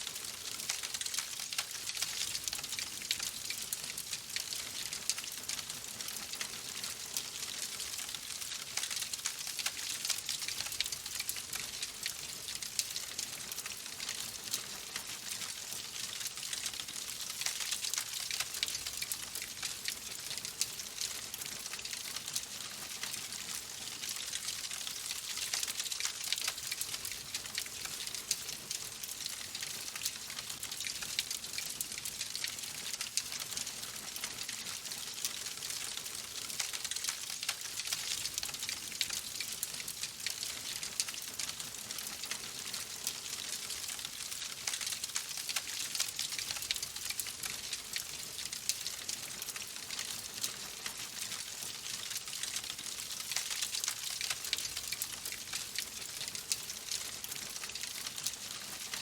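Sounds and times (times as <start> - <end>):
wood fire crackling: 51.8 - 58.1.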